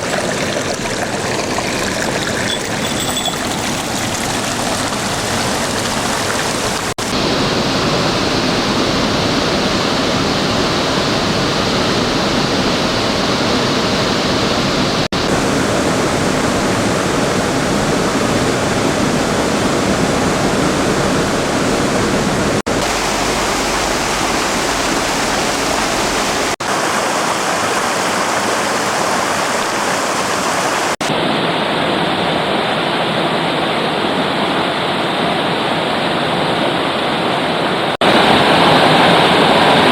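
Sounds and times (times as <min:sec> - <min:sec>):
fast-flowing river rushing: 0:00.0 - 0:39.9.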